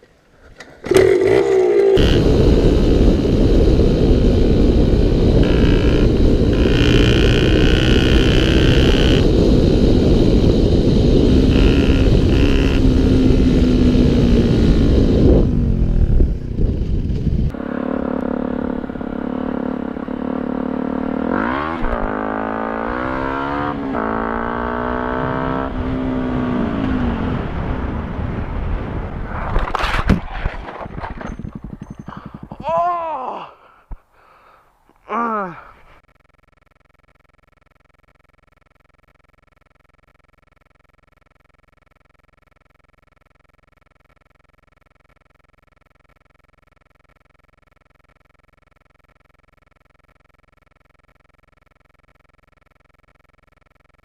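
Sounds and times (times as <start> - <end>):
motorcycle engine revving: 0.9 - 28.2, 31.0 - 32.8
wind noise on microphone: 2.0 - 17.6, 25.2 - 32.8.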